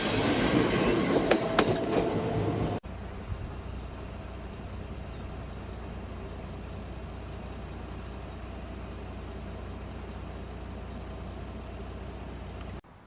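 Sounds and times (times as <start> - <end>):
electric train humming: 0.0 - 12.8.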